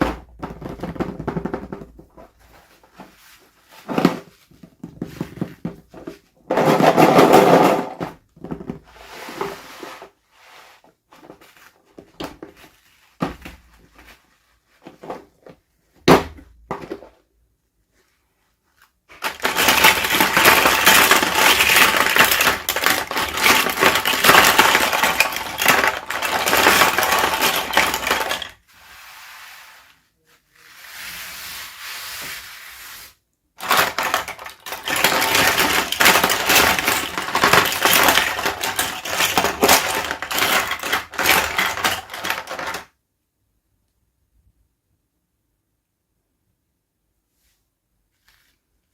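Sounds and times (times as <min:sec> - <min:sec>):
packaging crinkling: 0:19.2 - 0:28.6, 0:33.6 - 0:42.8.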